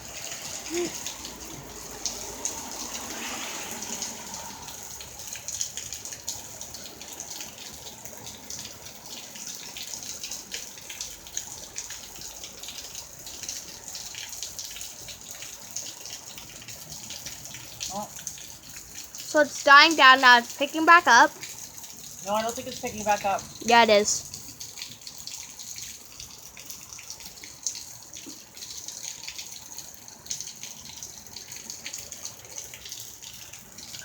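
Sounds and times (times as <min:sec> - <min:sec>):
heavy rain hissing: 0:00.0 - 0:04.8
close raindrop splashes: 0:00.0 - 0:34.0.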